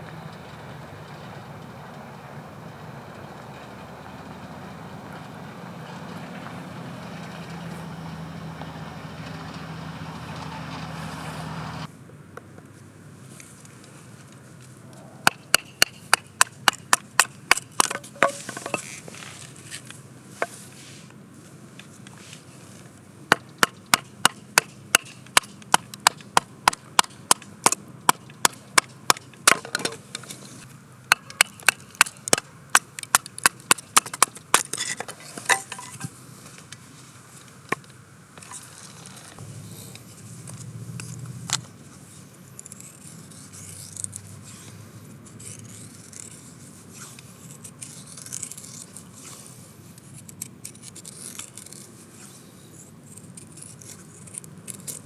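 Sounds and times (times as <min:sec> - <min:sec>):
knife shaving wood: 0:14.9 - 0:37.6, 0:41.6 - 0:55.0.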